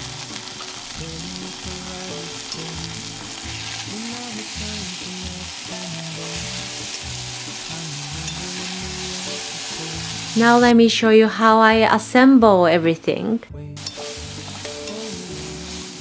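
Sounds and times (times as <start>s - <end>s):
vegetables sizzling in a frying pan: 0.0s - 10.8s, 13.8s - 16.0s
chopsticks stirring in a pan: 13.8s - 16.0s.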